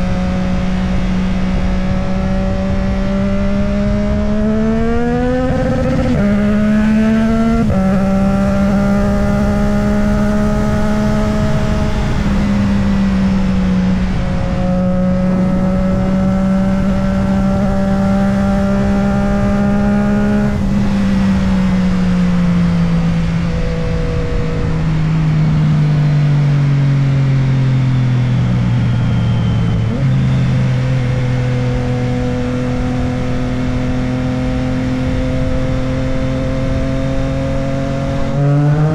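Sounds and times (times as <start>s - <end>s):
motorcycle engine running: 0.0s - 38.9s
wind rushing past microphone: 0.0s - 38.9s.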